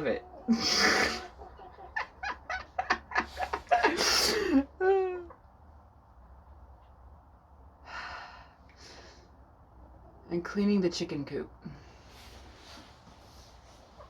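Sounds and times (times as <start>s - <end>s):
soft breaths: 7.7s - 9.6s, 11.6s - 14.0s.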